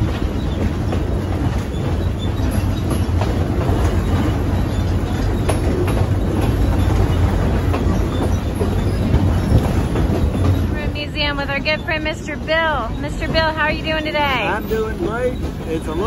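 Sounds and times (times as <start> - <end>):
wheel clicks on rails: 0.0 - 10.8
train car rumbling: 0.0 - 16.0.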